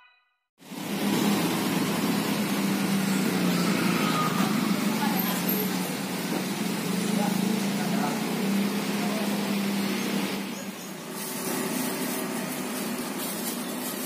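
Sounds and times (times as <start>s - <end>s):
low engine-like hum: 0.6s - 14.0s
traffic noise: 0.6s - 14.0s
indistinct voices: 2.9s - 11.0s.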